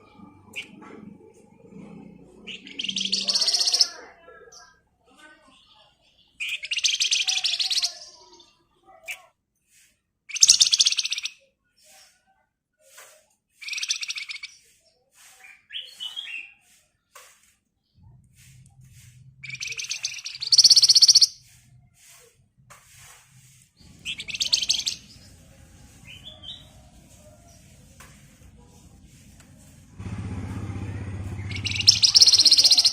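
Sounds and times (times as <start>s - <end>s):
songbird rattling trills: 2.5s - 4.0s, 19.4s - 21.4s, 23.9s - 25.3s, 31.2s - 32.9s.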